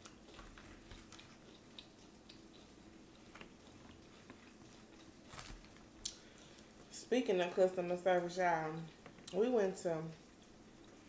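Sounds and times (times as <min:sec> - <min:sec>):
faint chewing: 0:00.0 - 0:07.0, 0:07.6 - 0:11.0
soft crunches: 0:03.2 - 0:06.7.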